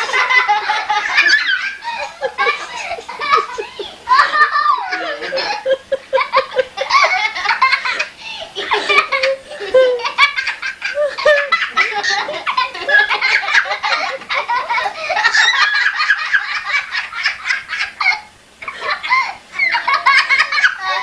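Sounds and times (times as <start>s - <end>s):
high-pitched giggling laughter: 0.0s - 21.0s.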